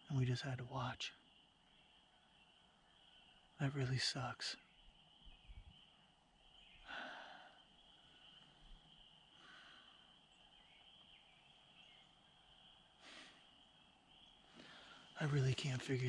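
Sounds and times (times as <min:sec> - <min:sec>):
soft rustle or breath: 0:14.4 - 0:15.2.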